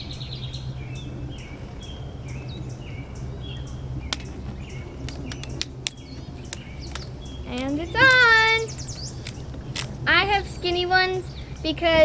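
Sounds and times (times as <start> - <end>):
songbird chirping: 0.0 - 12.0
steady low hum: 0.0 - 12.0
sharp clicks: 5.1 - 10.0.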